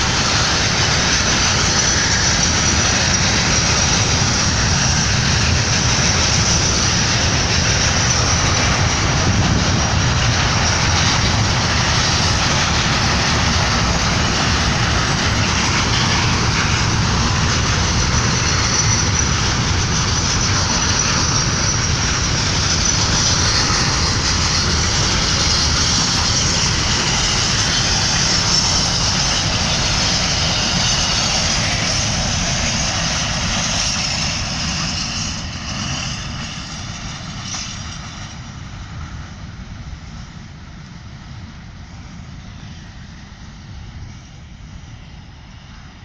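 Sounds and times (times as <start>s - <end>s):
freight train wheels rumbling: 0.0s - 46.0s
high hiss of passing train: 0.0s - 46.0s.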